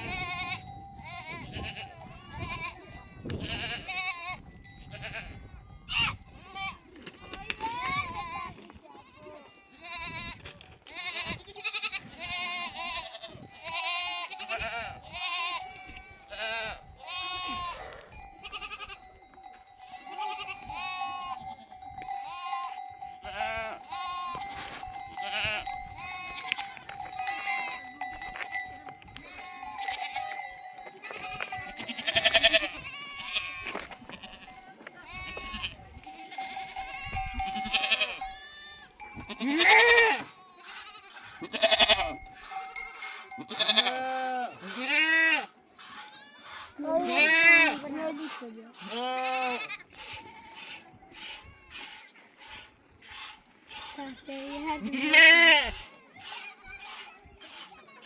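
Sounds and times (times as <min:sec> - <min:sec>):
sheep and goats bleating: 0:00.0 - 0:58.0
faint steady ringing tone: 0:17.8 - 0:32.6.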